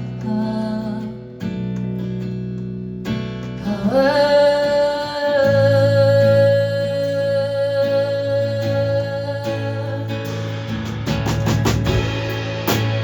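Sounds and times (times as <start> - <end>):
strummed acoustic guitar: 0.0 - 13.0
person singing: 3.6 - 10.3.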